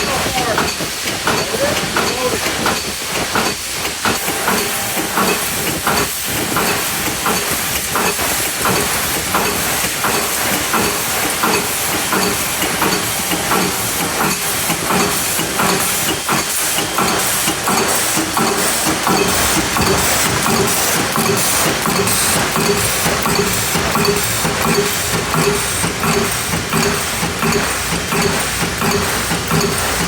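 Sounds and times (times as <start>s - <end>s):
machine clicking regularly: 0.0s - 30.0s
machine hissing: 0.0s - 30.0s.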